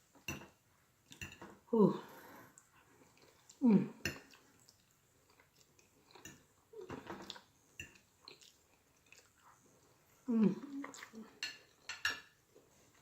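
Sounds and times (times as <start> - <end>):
close-miked chewing: 2.6 - 11.9.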